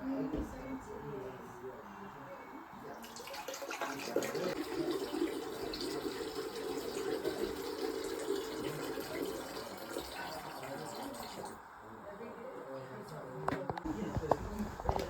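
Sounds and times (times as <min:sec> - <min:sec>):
water pouring and splashing: 0:03.0 - 0:11.6.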